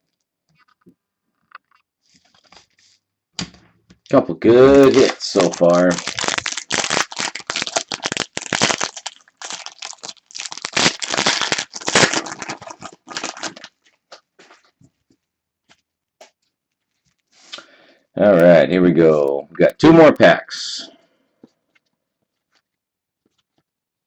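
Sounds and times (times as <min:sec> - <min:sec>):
plastic wrapper crinkling and tearing: 0:01.7 - 0:03.0, 0:04.0 - 0:14.8.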